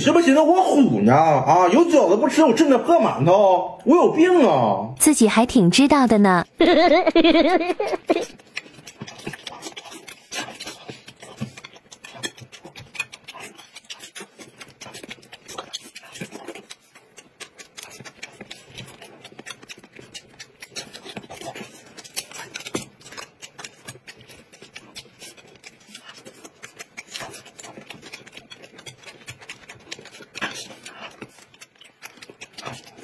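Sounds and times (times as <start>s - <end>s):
people chewing with wet smacks: 7.2s - 33.0s.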